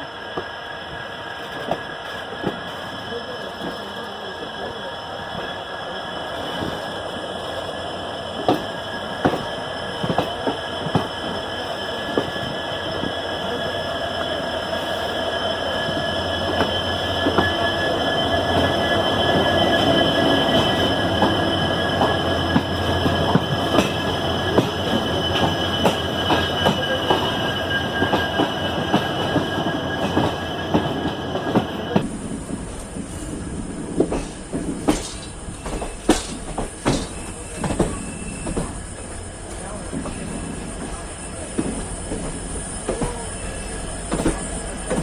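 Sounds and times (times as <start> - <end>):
train rumble: 0.0 - 45.0
train wheels squealing: 0.0 - 45.0
rail joints clicking: 15.8 - 45.0.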